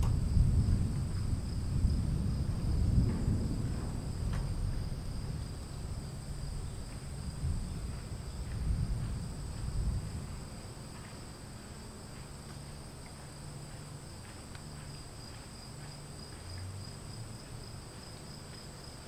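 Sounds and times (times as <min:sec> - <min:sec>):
distant thunder rumbling: 0:00.0 - 0:10.4.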